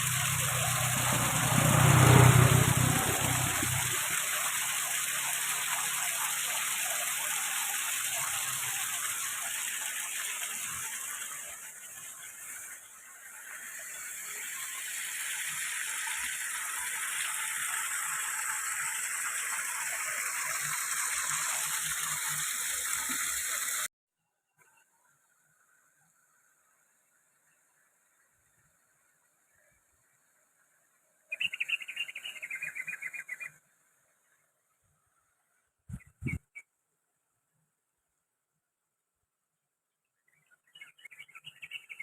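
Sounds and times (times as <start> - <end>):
waterfall rushing: 0.0 - 4.4.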